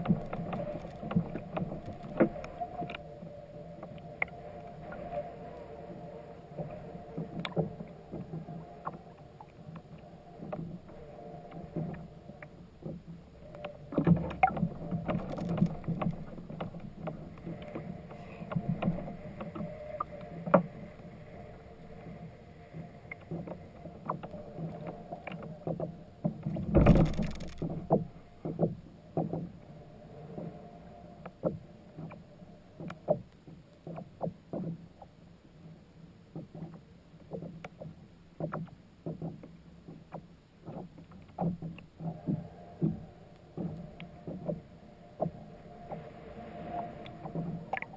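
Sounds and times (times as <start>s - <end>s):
water sloshing around kayak: 0.0s - 3.0s, 13.8s - 20.7s.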